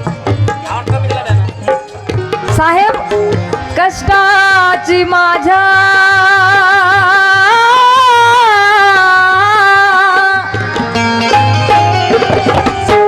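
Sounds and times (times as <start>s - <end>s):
instrumental melody: 0.0s - 13.0s
hand drum strokes: 10.5s - 13.0s.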